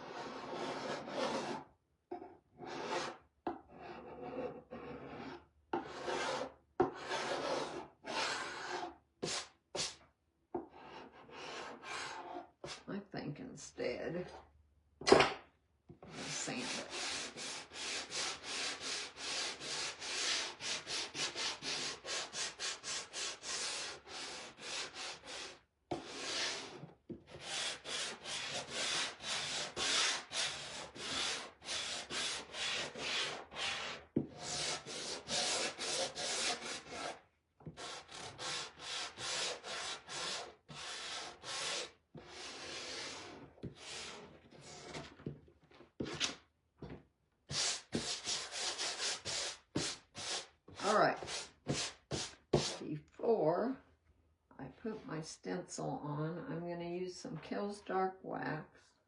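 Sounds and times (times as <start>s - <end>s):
sandpaper rubbing on wood: 16.2s - 26.8s, 27.4s - 37.2s, 37.8s - 44.2s, 47.5s - 50.5s.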